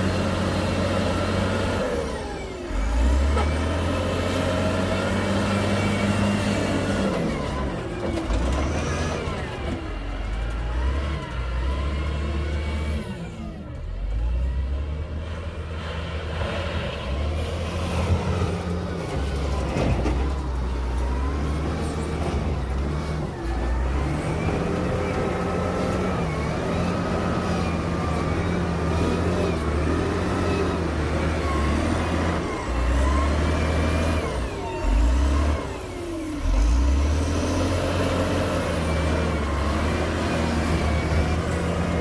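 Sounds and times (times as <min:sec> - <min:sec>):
heavy diesel engine running: 0:00.0 - 0:42.0.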